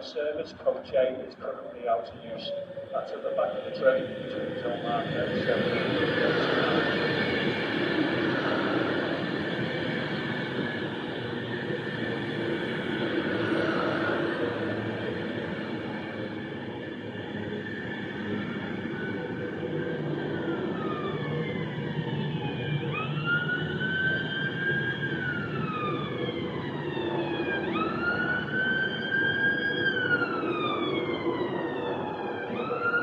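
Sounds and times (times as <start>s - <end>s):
train rumbling: 0.0s - 33.0s
siren wailing: 1.6s - 33.0s.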